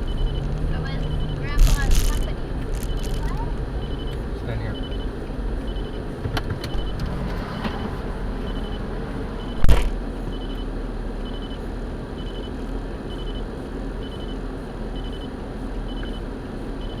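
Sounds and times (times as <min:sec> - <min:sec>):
vehicle engine running: 0:00.0 - 0:17.0
loud thump: 0:09.6 - 0:10.0.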